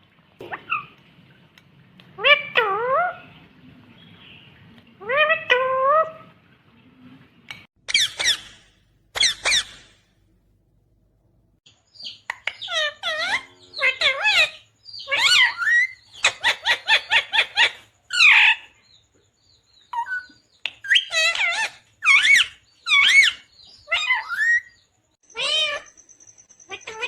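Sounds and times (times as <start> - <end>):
parakeet squawking and chattering: 5.0 - 6.2, 7.8 - 10.0, 12.0 - 18.7, 19.9 - 26.0, 26.6 - 27.0.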